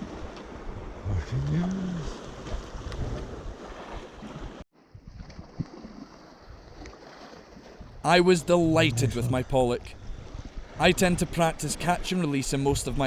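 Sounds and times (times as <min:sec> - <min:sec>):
wind on microphone: 0:02.0 - 0:05.8, 0:07.8 - 0:10.9
sea swell: 0:08.1 - 0:11.6
man shouting: 0:08.3 - 0:09.6.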